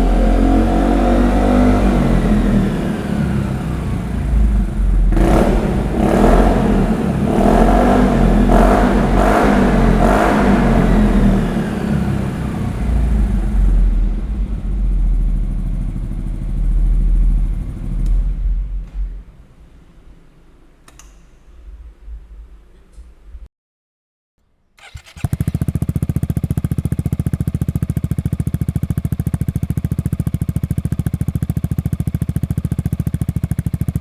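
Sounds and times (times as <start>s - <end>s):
scooter engine revving: 0.0s - 18.8s, 24.8s - 34.0s
scooter engine idling: 1.8s - 18.8s, 24.8s - 34.0s.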